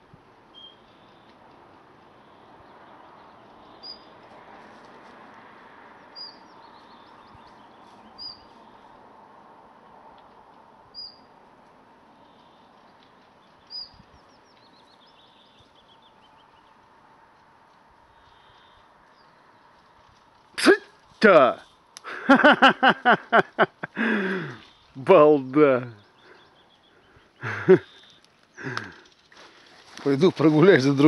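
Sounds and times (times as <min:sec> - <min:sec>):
faint outdoor hiss: 0:00.0 - 0:31.0
songbird chirping: 0:02.1 - 0:04.2, 0:05.8 - 0:09.1, 0:10.9 - 0:11.4, 0:12.0 - 0:17.5, 0:18.2 - 0:20.1, 0:21.4 - 0:31.0
quick bird twittering: 0:03.6 - 0:04.1, 0:06.1 - 0:08.8, 0:10.9 - 0:11.3, 0:13.5 - 0:16.4.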